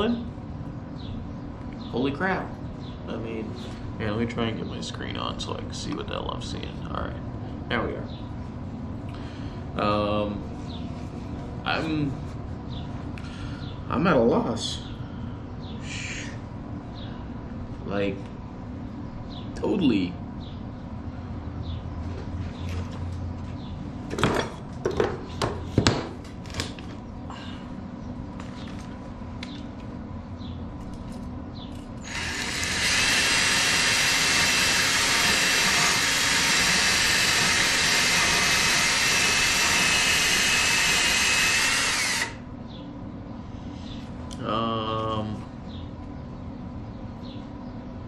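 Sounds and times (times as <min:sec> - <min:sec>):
welder arc buzzing: 0:32.0 - 0:42.5.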